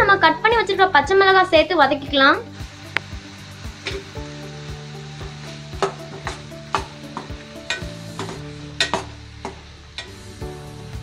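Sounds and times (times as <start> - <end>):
vegetables sizzling in oil: 0.0 - 11.0
spatula scraping and knocking pan: 5.2 - 10.2.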